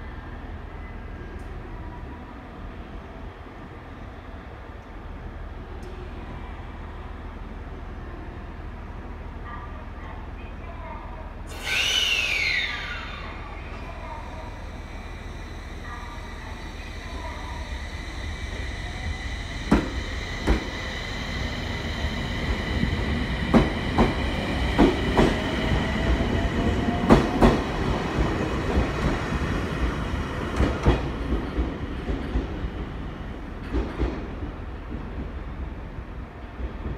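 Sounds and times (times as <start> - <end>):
train wheels clicking over rail joints: 19.6 - 20.8.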